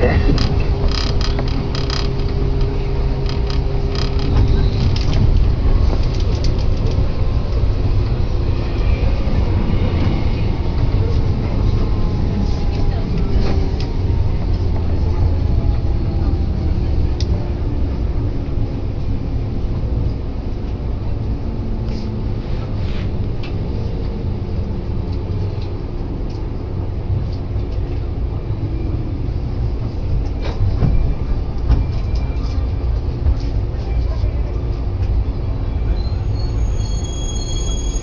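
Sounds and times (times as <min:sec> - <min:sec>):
train running rumble: 0:00.0 - 0:38.0
wheel and rail clicks: 0:00.2 - 0:07.6.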